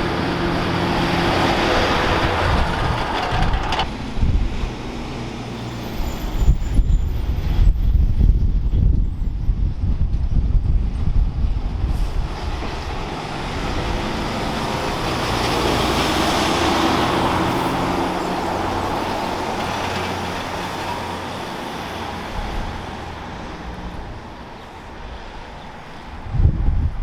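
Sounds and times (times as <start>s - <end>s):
truck driving past: 0.0s - 6.6s, 12.0s - 24.2s.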